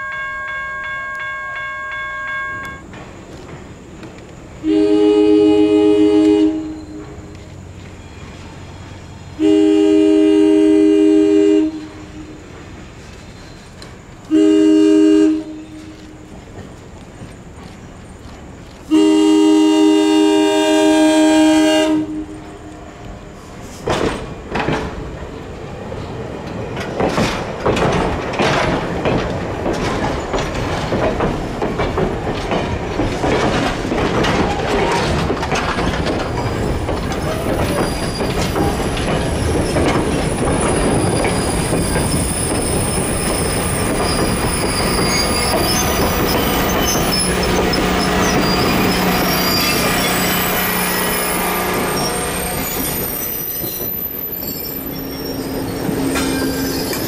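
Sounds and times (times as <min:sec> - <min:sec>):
train wheels rumbling on rails: 0:00.0 - 0:57.0
locomotive air horn: 0:04.6 - 0:07.1, 0:09.4 - 0:12.4, 0:14.3 - 0:16.3, 0:18.9 - 0:22.8, 0:46.6 - 0:52.9
thin wheel squeal: 0:37.2 - 0:39.8, 0:40.6 - 0:57.0.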